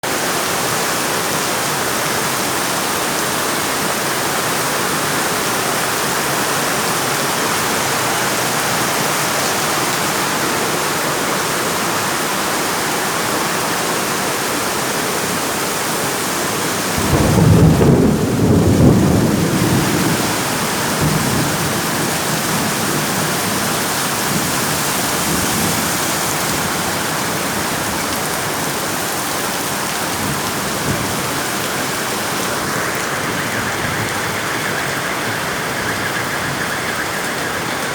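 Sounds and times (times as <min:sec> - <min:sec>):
heavy rain falling: 0:00.0 - 0:37.9
thunder rumbling: 0:16.7 - 0:37.9.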